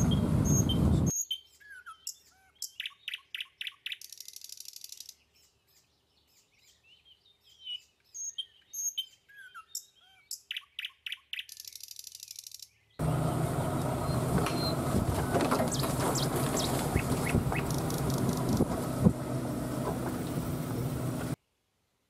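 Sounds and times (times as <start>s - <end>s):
vehicle and wind rumble: 0.0s - 1.1s, 13.0s - 21.4s
songbirds chirping: 0.0s - 21.4s
high buzzy bird trill: 15.7s - 18.7s.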